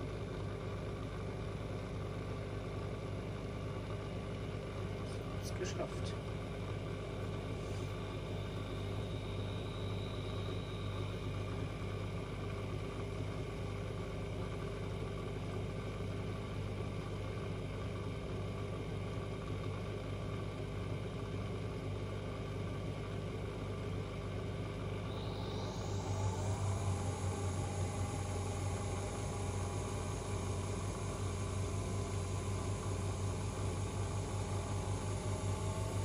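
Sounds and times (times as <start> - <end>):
washing machine motor hum: 25.0 - 36.0.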